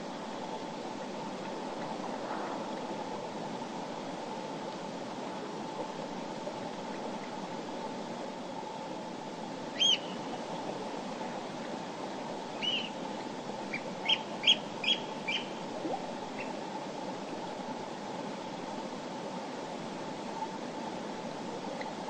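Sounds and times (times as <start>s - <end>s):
bird chirping: 9.8s - 10.2s, 12.6s - 12.9s, 13.7s - 15.5s.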